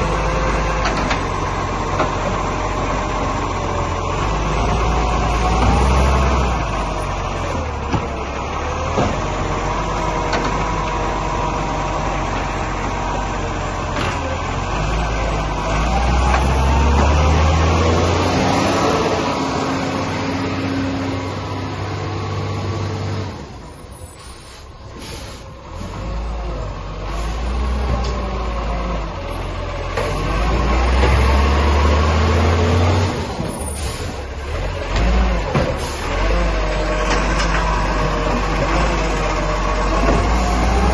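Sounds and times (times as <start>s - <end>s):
garbage truck engine revving: 0.0s - 40.9s.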